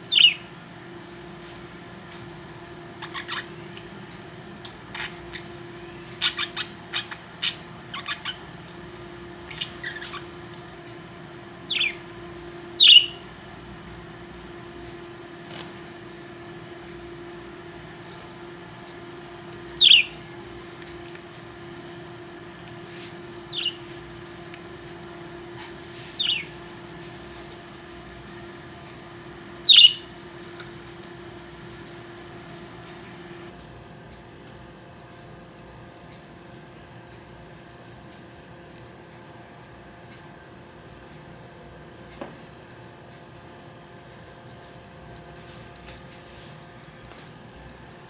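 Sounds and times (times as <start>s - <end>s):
steady low hum: 0.0s - 48.0s
parrot chirps and clicks: 0.1s - 0.5s, 2.9s - 11.0s, 11.6s - 14.1s, 18.3s - 33.5s
parrot squawks: 0.1s - 0.5s, 3.0s - 3.6s, 6.1s - 8.5s, 12.8s - 13.2s, 19.8s - 20.2s, 23.5s - 23.9s, 26.2s - 26.5s, 29.6s - 30.1s.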